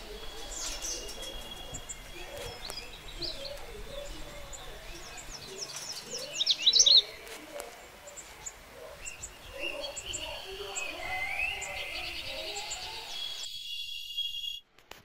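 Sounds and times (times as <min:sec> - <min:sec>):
birds chirping: 0:00.0 - 0:14.6.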